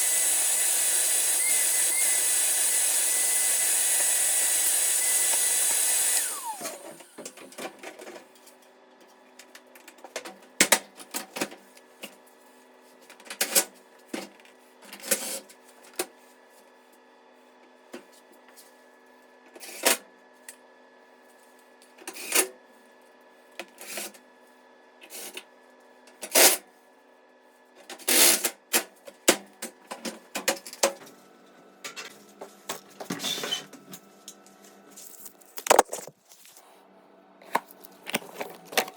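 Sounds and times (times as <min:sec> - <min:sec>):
motor winding down with whine: 0:00.0 - 0:07.2.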